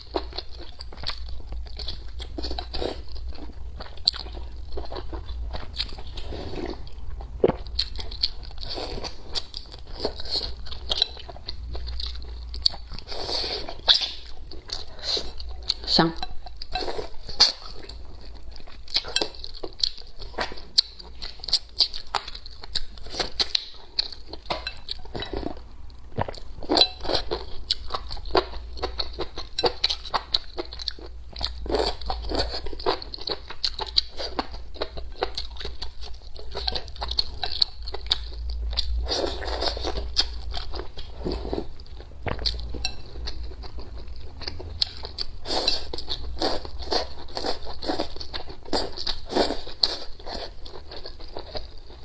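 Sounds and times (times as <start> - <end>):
person chewing and crunching food: 0.0 - 52.0.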